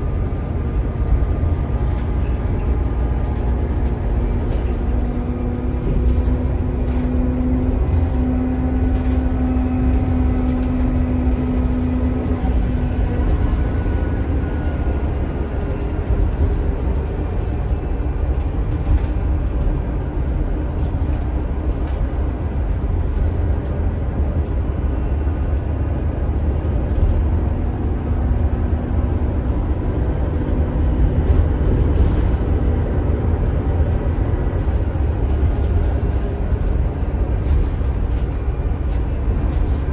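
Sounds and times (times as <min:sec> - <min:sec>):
bus engine rumbling: 0:00.0 - 0:39.9.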